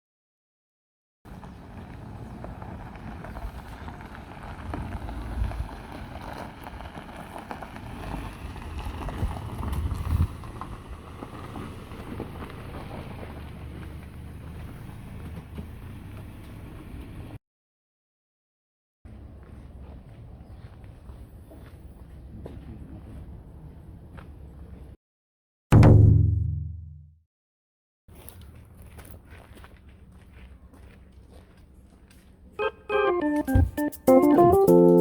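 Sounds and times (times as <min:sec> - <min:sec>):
wind buffeting microphone: 0:01.5 - 0:07.1, 0:07.8 - 0:12.3.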